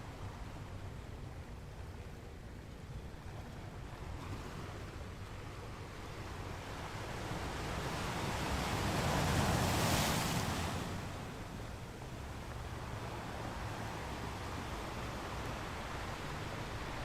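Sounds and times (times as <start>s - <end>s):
ocean waves breaking: 3.6s - 17.0s.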